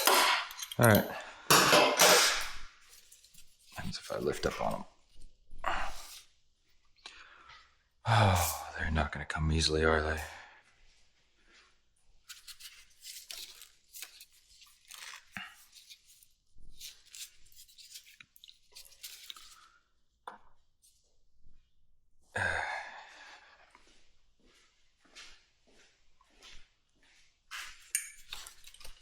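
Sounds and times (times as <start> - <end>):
hands scraping metal parts: 0.0 - 4.8.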